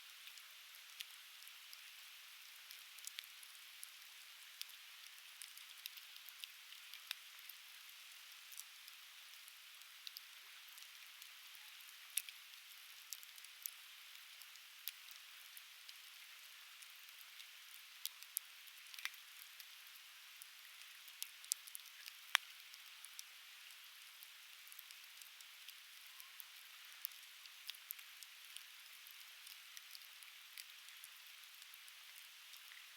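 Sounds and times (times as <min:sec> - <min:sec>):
steady hiss: 0:00.0 - 0:32.9
firewood crackling and popping: 0:21.1 - 0:23.3.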